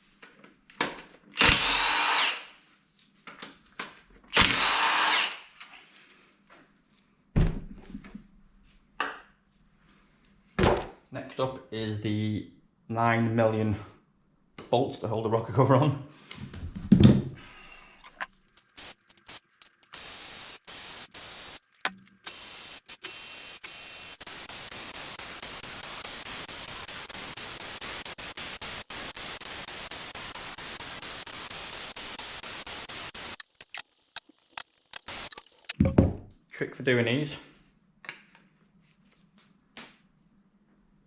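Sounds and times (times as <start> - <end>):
steady treble hiss: 18.6 - 35.8.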